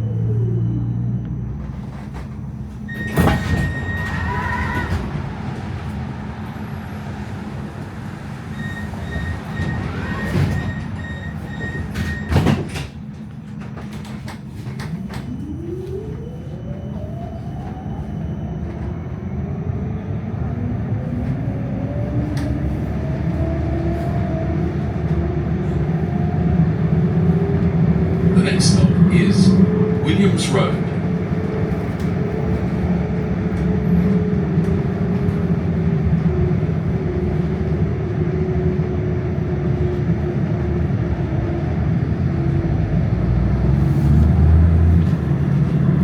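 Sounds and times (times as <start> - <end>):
door warning beeps: 0.0 - 5.0, 8.5 - 12.9
traction motors whining: 0.0 - 46.0
tram doors knocking shut: 9.4 - 15.3.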